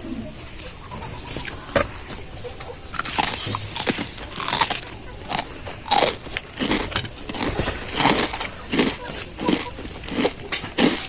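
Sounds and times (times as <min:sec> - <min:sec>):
person chewing crunchy food: 0:03.0 - 0:11.0.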